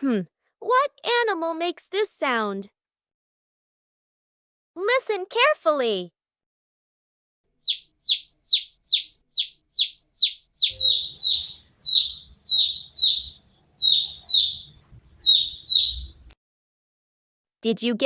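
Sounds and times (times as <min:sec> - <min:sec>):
baby chick peeping: 0:07.6 - 0:16.4.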